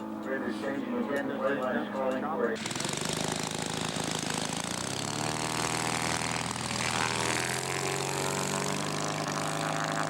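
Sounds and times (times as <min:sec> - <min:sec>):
model airplane engine running: 0:02.6 - 0:10.0.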